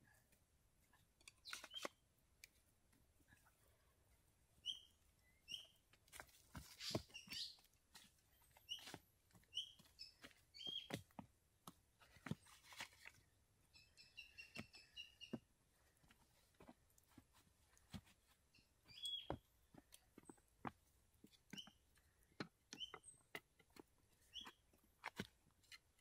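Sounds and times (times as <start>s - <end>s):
small bird chirping: 1.2s - 2.0s, 4.6s - 5.9s, 6.7s - 7.7s, 8.4s - 11.1s, 13.6s - 15.5s, 18.5s - 19.4s, 21.3s - 23.4s, 24.2s - 24.7s.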